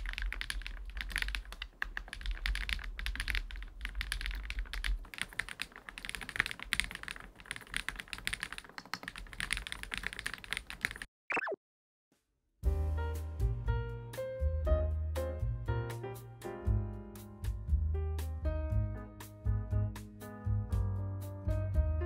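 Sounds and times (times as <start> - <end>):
fast typing on mechanical keyboard: 0.0 - 11.1.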